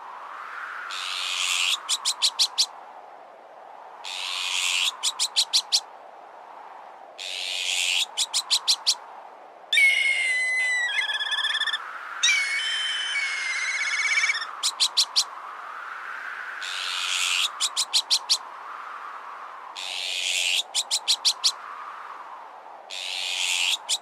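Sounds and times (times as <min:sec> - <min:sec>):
short bird notes: 0:09.8 - 0:14.5
harsh ringing bird calls: 0:09.8 - 0:15.3.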